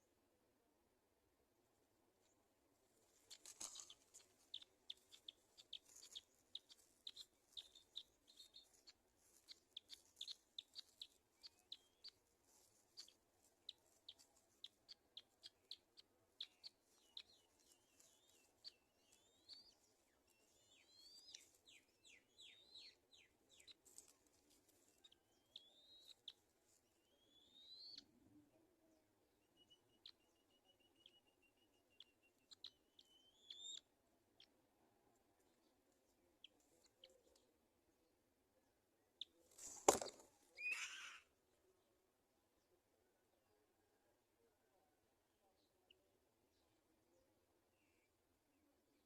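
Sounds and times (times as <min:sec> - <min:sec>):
faint high-pitched bird calls: 0:03.3 - 0:34.6, 0:39.2 - 0:41.4.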